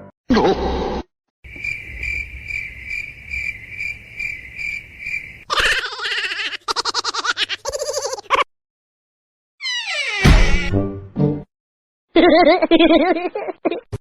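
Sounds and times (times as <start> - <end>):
high chirping: 1.5 - 5.4.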